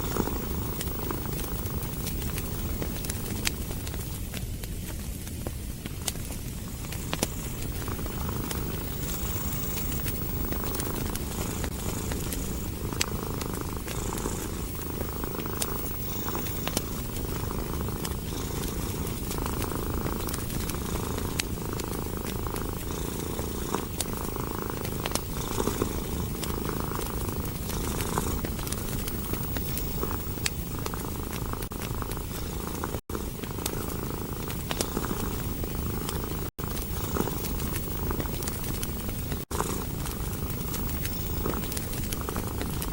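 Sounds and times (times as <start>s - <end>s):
cat purring: 0.0s - 42.9s
wood fire crackling and popping: 0.0s - 42.9s.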